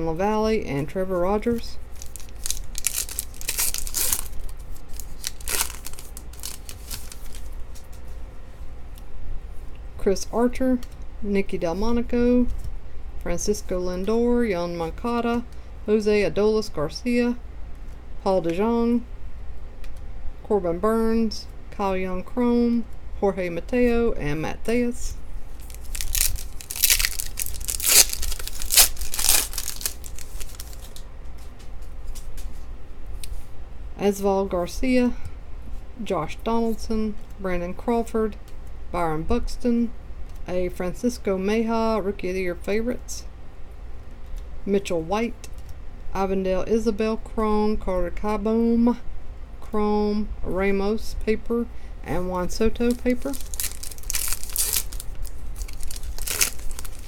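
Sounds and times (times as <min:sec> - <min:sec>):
foil wrapper crinkling and tearing: 0:01.9 - 0:07.9, 0:25.5 - 0:31.0, 0:52.8 - 0:57.0.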